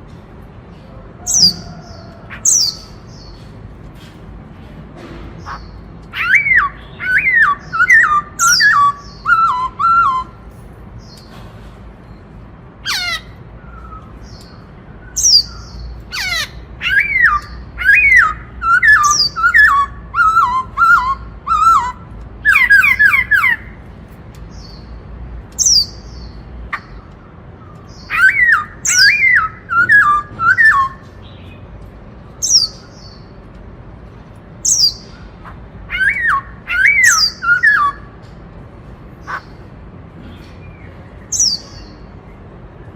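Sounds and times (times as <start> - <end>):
bird whistling song: 1.3 - 3.4, 5.5 - 10.4, 12.9 - 23.8, 25.6 - 31.6, 32.4 - 33.3, 34.6 - 35.2, 35.9 - 38.2, 41.2 - 42.1.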